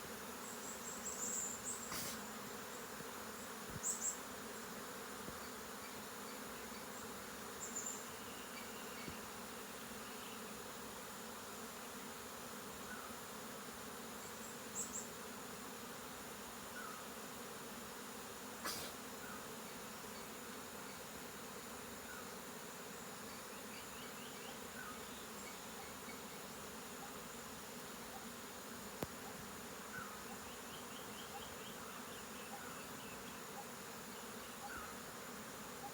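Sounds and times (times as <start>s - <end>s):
honeybees buzzing: 0.0s - 35.9s.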